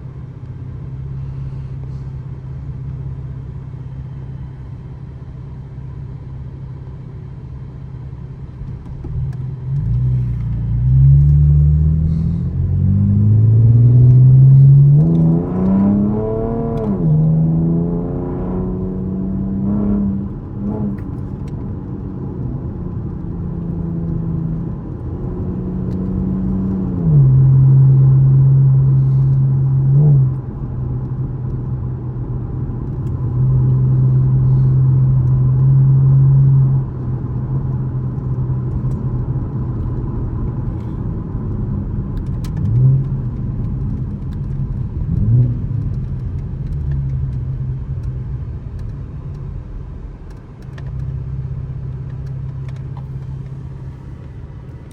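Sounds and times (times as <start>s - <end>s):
car engine running: 0.0s - 54.9s.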